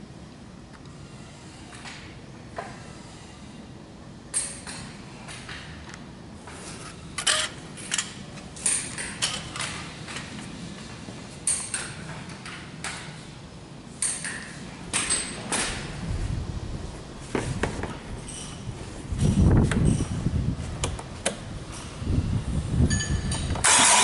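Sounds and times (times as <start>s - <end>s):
faint steady hum: 0.0s - 24.0s
metallic clinks and knocks: 22.9s - 23.6s.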